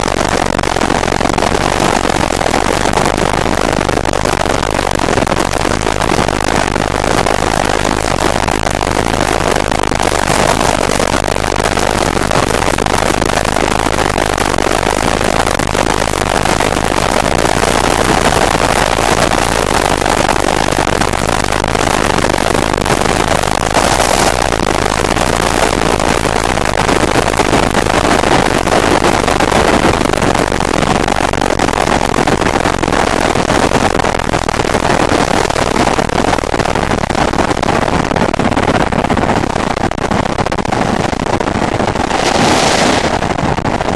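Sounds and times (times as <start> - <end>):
motorcycle engine running hard: 0.0 - 31.2
wind over microphone: 0.0 - 43.9.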